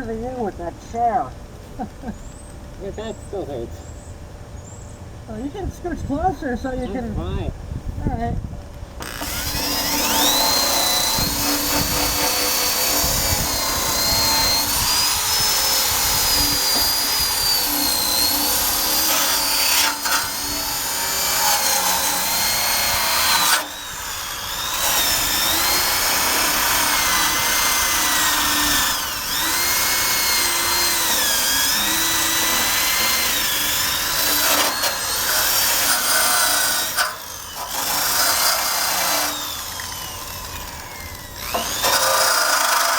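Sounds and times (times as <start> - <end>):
drill wire brush grinding steel: 9.0 - 42.9.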